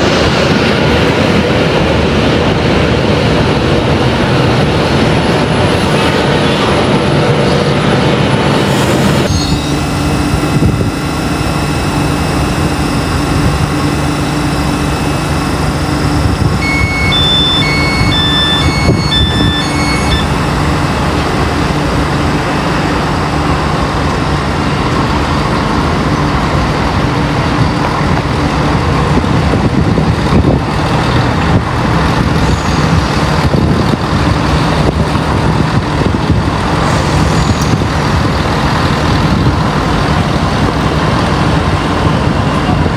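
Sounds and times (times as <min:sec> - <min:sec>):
train engine running: 0:00.0 - 0:42.9
short electronic beeps: 0:09.3 - 0:20.6.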